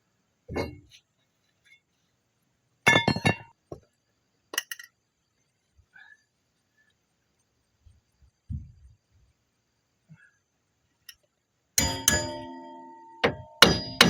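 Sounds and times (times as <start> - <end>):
metal tools clinking: 11.8 - 14.0.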